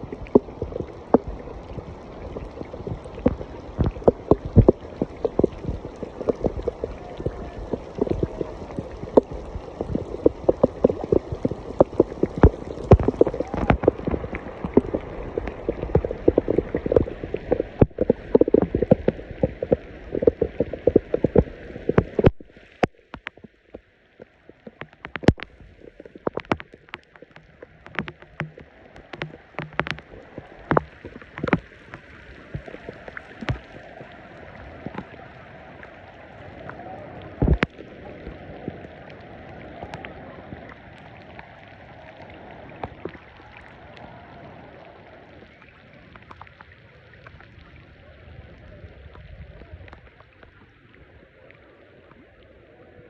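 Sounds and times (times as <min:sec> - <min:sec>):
scattered drips: 0:00.0 - 0:35.9, 0:36.6 - 0:38.9
rain pattering on water: 0:00.0 - 0:53.0.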